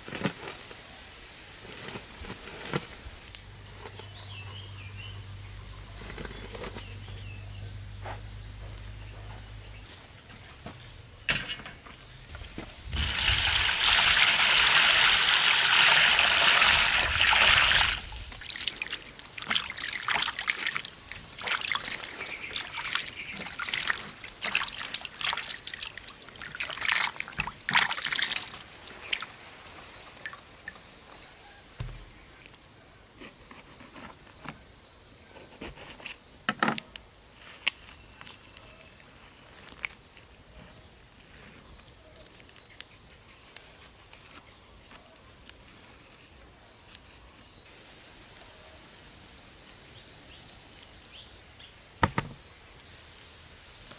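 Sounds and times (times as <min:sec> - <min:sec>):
liquid pouring in a stream: 0:12.8 - 0:29.4.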